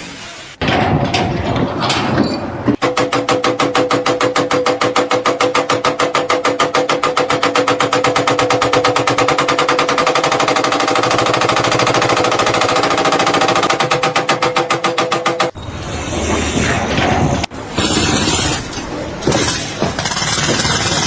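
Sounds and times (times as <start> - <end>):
power tool hammering rapidly: 2.8 - 15.6, 19.2 - 21.0.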